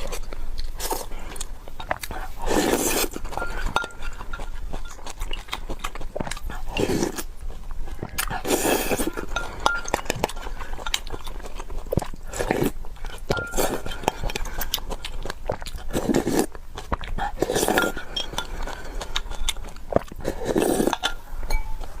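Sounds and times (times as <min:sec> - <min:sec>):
chewing: 0:00.0 - 0:22.0
utensils clinking against a bowl: 0:03.1 - 0:05.8, 0:09.0 - 0:11.0, 0:13.3 - 0:14.6, 0:17.6 - 0:19.6, 0:20.8 - 0:22.0.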